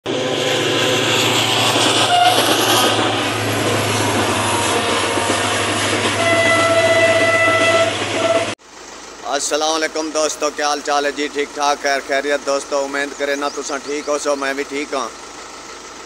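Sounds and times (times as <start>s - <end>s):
truck engine hum: 0.0s - 16.0s
passenger train rumbling and clattering: 0.1s - 8.6s
train horn: 1.9s - 8.6s.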